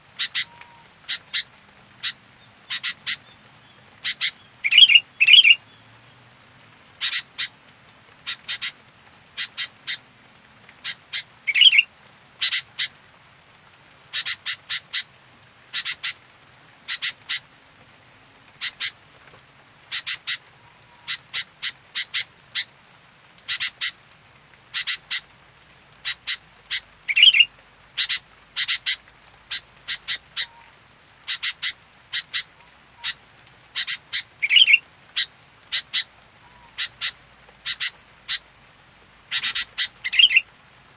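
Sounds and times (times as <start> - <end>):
louder wavering bird call: 4.1 - 5.6, 11.5 - 11.8, 39.3 - 40.4.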